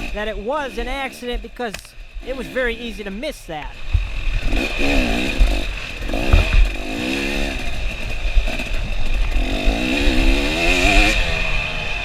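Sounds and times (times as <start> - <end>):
dirt bike engine revving: 0.0 - 12.0
low thumps: 1.2 - 7.8.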